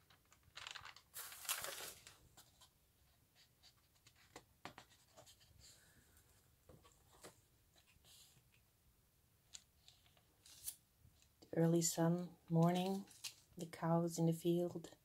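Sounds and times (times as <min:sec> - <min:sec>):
paper pages rustling: 0:00.0 - 0:02.7, 0:09.5 - 0:10.8, 0:12.6 - 0:13.5.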